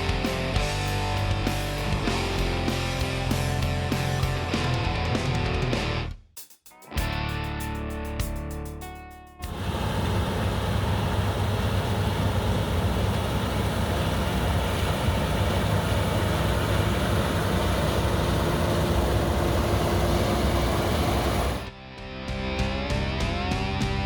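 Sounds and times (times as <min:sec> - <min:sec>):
combine harvester machinery drone: 0:09.5 - 0:21.7.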